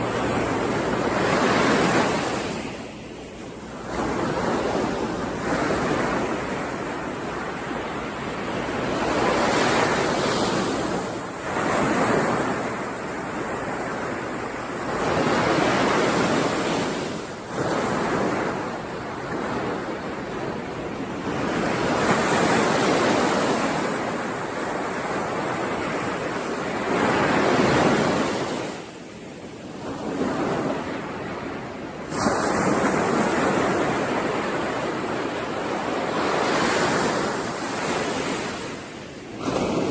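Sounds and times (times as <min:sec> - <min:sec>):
sea waves washing onto shore: 0:00.0 - 0:39.9.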